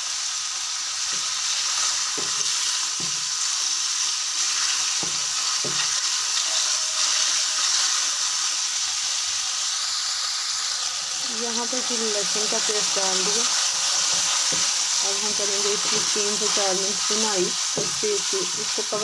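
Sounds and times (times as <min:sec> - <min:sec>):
chicken sizzling in hot oil: 0:00.0 - 0:19.0
wooden spatula knocking pan: 0:01.1 - 0:03.4, 0:04.9 - 0:06.1, 0:14.0 - 0:16.6, 0:17.4 - 0:18.3.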